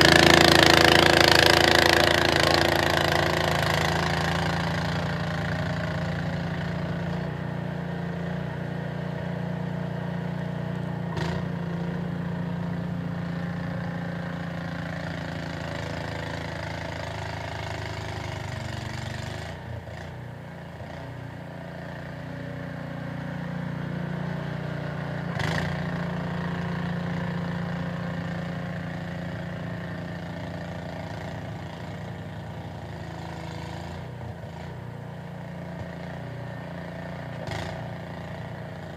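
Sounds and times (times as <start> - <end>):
small engine running: 0.0 - 7.4, 21.9 - 38.9.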